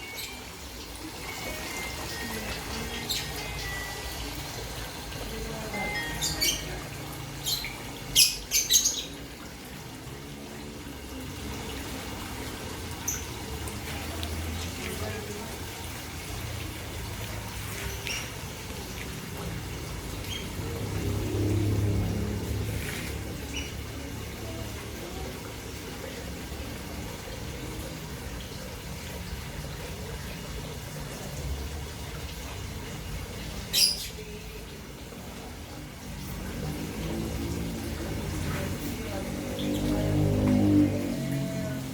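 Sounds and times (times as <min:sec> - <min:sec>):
water trickling in a pond: 0:00.0 - 0:41.9
shrill high-pitched sound: 0:05.7 - 0:07.0.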